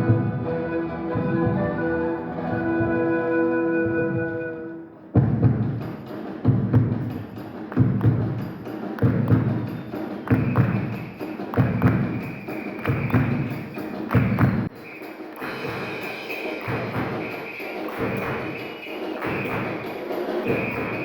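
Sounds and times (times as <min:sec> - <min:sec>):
andean ensemble music: 0:00.0 - 0:05.2
deep drum beats: 0:05.2 - 0:14.7.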